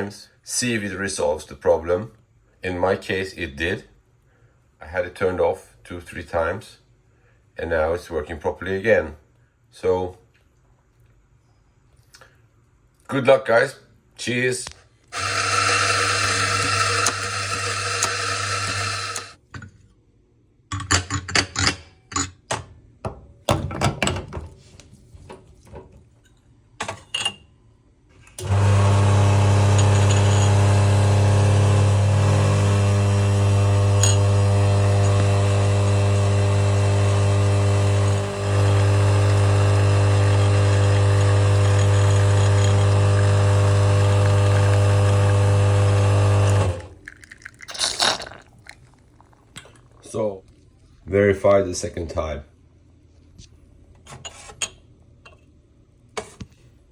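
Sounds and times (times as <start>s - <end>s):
espresso machine pump humming: 15.2s - 19.4s, 28.4s - 47.6s.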